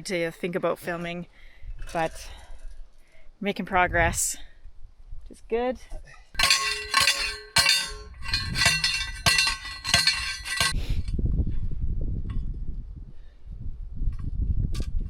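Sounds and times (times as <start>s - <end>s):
metal clinks ringing: 6.4s - 10.8s.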